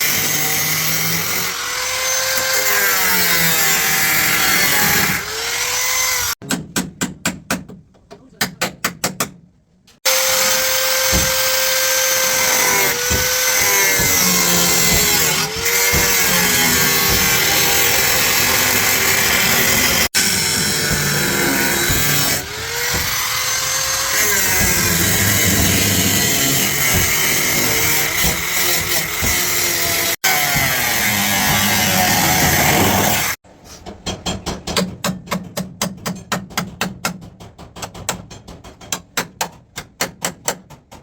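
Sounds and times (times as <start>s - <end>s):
electric power tool running: 10.1s - 28.1s, 28.7s - 33.4s.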